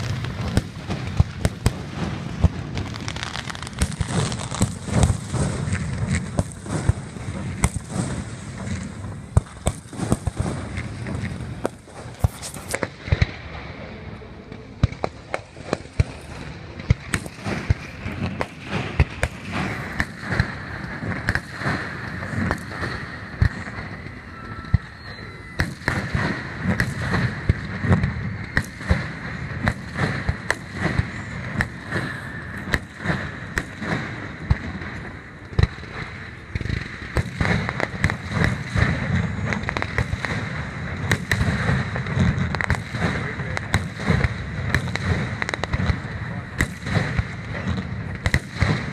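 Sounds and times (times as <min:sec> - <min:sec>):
fireworks bangs and booms: 0:00.0 - 0:48.9.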